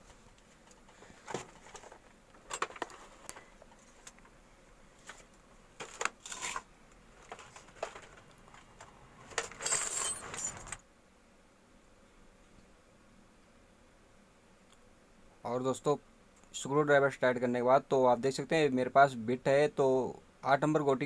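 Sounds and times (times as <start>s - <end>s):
metal parts clinking and rattling: 7.2s - 10.8s.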